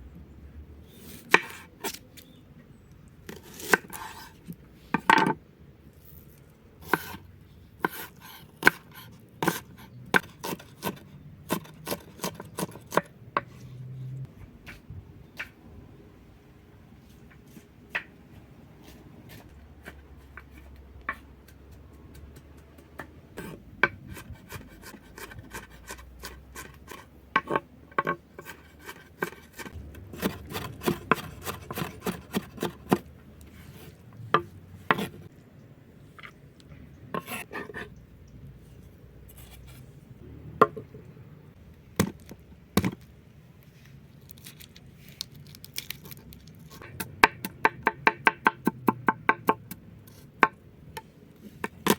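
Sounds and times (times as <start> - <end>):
knife chopping strokes: 6.8 - 7.2, 7.8 - 13.1, 28.4 - 35.3.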